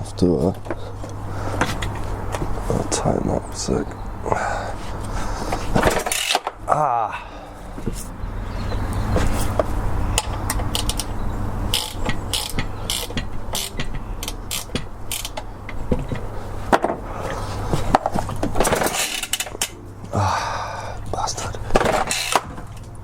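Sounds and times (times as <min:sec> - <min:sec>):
steady low hum: 0:00.0 - 0:23.0
ratchet wrench clicking: 0:06.0 - 0:06.5, 0:10.2 - 0:15.5.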